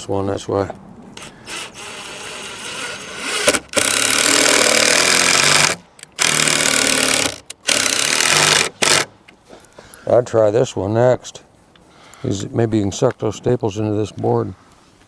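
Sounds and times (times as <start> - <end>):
impact driver driving screws: 1.2 - 9.1.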